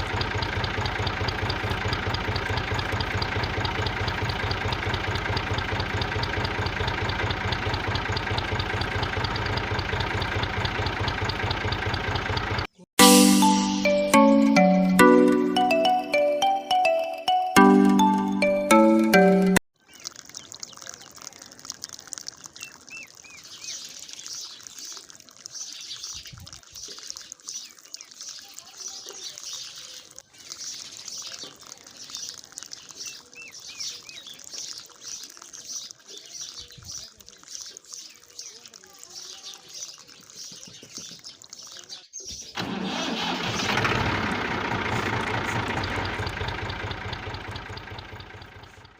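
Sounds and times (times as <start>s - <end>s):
engine starting and pulsing: 0.0s - 12.8s, 42.5s - 48.9s
water running from pump: 0.0s - 12.8s, 19.8s - 48.9s
bird chirps: 0.0s - 16.7s, 19.8s - 42.6s, 45.6s - 48.9s
music tune: 13.0s - 19.6s.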